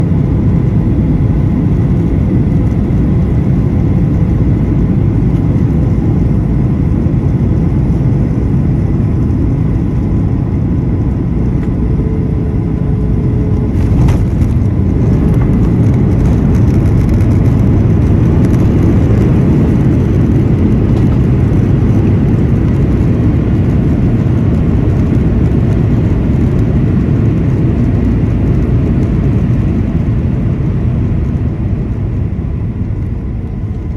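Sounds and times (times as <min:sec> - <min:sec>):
airliner engines and rushing air: 0:00.0 - 0:33.9
sharp thump: 0:13.7 - 0:15.5.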